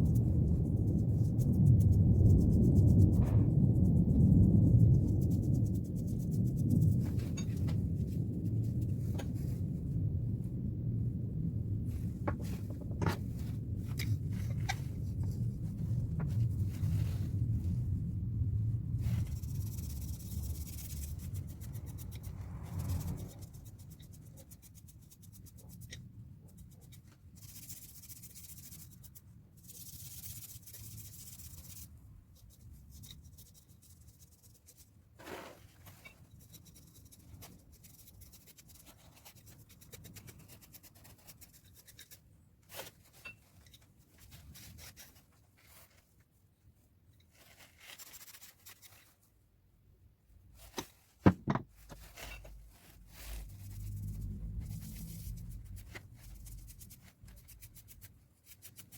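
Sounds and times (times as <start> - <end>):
rubbing and scraping tool parts: 19.0 - 46.1, 50.6 - 58.9
sharp knocks: 51.2 - 51.8.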